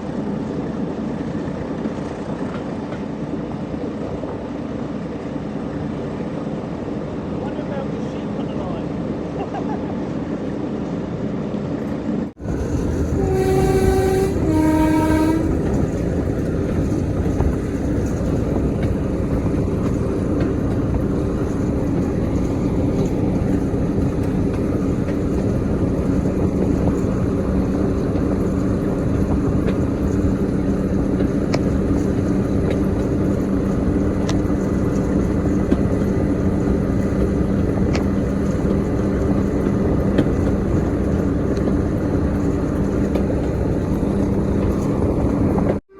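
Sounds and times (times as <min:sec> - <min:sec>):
diesel engine running: 0:12.4 - 0:45.8
locomotive two-tone horn: 0:13.1 - 0:15.9.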